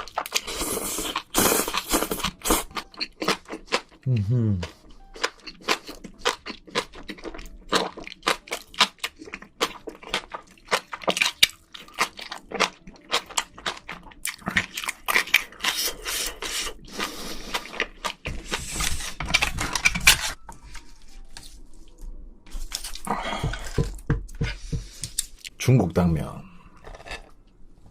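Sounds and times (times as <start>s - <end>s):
wet chewing and mouth smacks: 1.2s - 4.0s, 4.7s - 18.3s.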